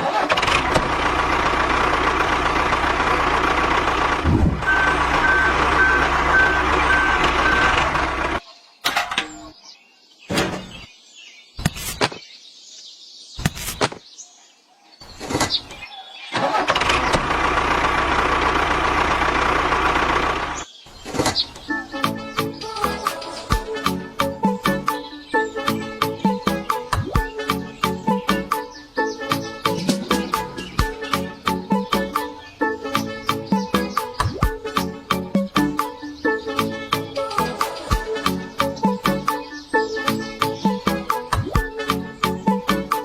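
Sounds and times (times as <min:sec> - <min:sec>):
tractor engine running: 0:00.0 - 0:09.4, 0:16.4 - 0:22.2.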